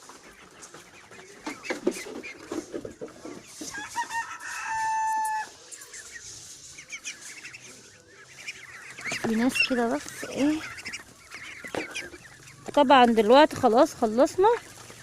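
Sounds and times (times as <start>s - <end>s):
poultry clucking: 0.0s - 15.0s
rooster crowing: 3.7s - 5.6s.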